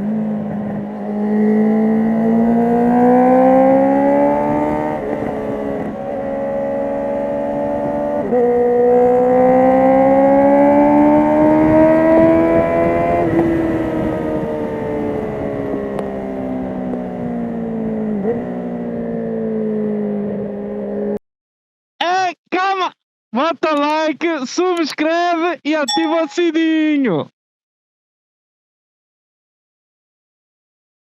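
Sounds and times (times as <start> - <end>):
motorcycle engine revving under load: 0.1 - 14.5.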